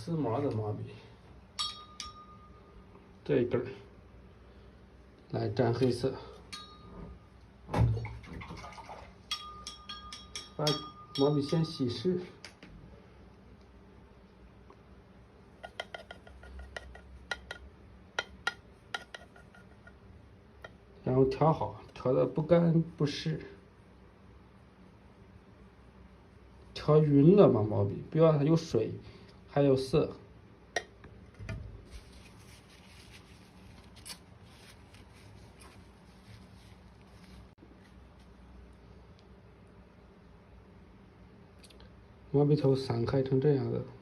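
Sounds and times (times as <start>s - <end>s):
brush handle clinking on dish: 1.6s - 2.5s, 9.3s - 11.9s
ink brush clicking on dish: 15.6s - 20.0s.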